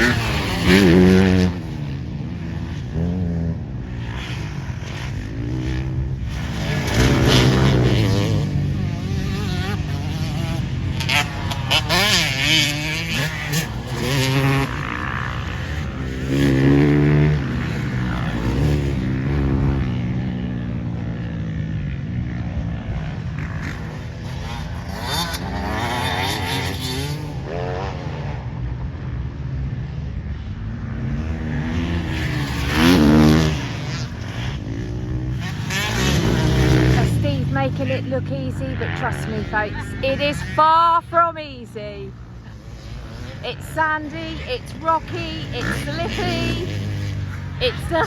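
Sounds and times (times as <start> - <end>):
motocross bikes revving: 0.0 - 48.0
motorbikes passing close: 0.0 - 48.0.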